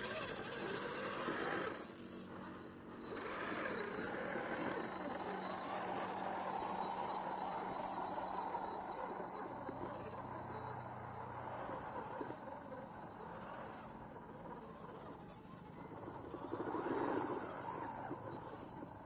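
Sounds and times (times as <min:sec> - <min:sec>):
small electric motor whine: 0:00.0 - 0:19.0.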